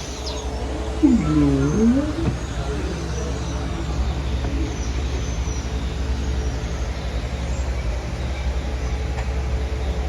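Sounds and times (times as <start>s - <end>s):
truck engine low rumble: 0.0s - 7.5s.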